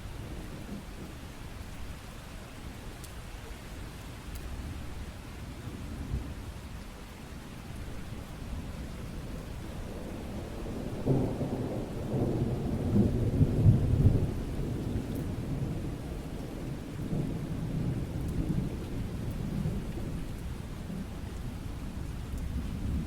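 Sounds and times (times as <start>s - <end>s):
steady rain: 0.0s - 23.0s
low thunder rumble: 8.6s - 23.0s.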